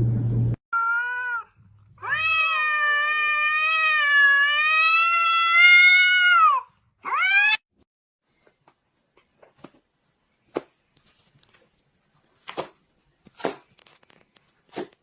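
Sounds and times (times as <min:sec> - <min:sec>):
cat meowing: 0:00.8 - 0:07.6.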